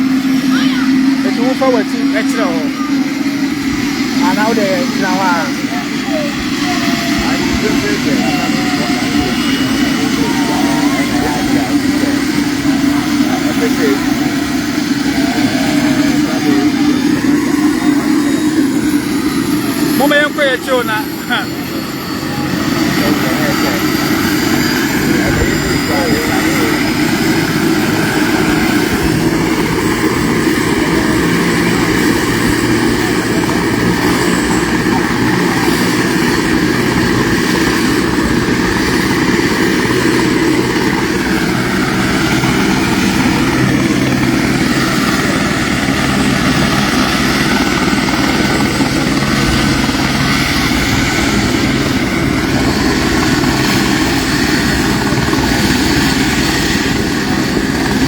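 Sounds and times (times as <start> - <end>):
helicopter engine and rotor: 0.0 - 58.0.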